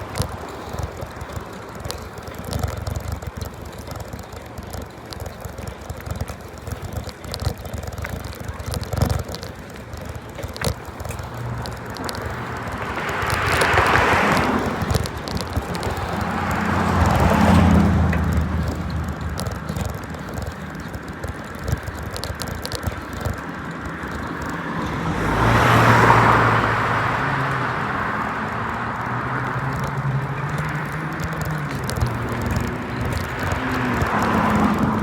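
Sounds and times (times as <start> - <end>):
steady road noise: 0.0 - 35.0
vehicles passing: 0.0 - 35.0.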